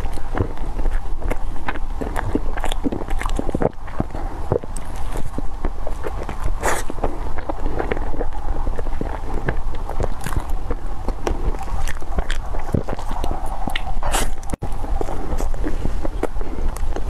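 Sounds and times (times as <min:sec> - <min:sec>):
airy slurp: 0:00.0 - 0:17.0
wet chewing with mouth clicks: 0:00.0 - 0:17.0.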